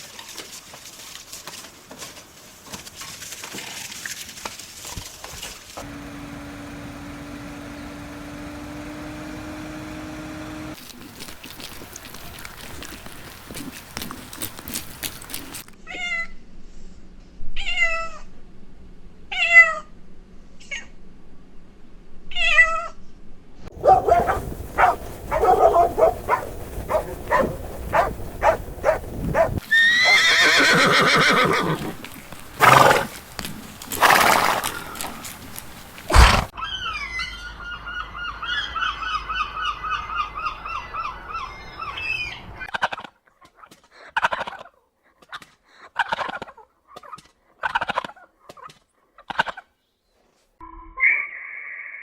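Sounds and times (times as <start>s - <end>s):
animal gliding calls: 23.7s - 36.5s
short animal call bursts: 24.2s - 33.2s, 36.1s - 36.5s.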